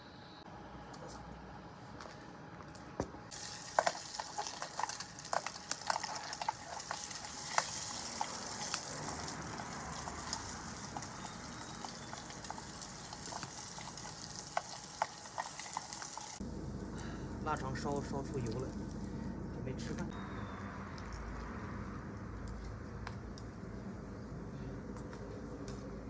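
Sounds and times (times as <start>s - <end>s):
fat popping and crackling: 3.3s - 16.4s
sausage sizzling in a pan: 3.3s - 16.4s.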